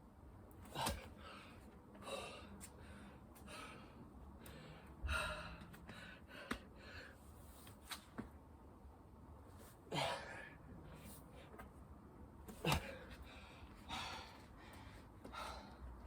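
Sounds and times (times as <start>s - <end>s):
person breathing hard: 0.7s - 7.3s, 12.6s - 16.0s.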